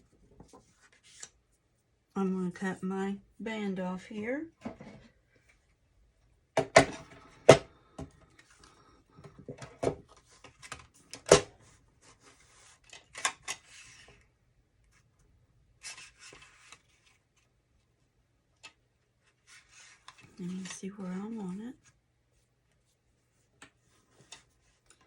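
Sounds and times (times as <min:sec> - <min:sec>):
paper rustling: 0:00.4 - 0:01.4, 0:15.8 - 0:17.6.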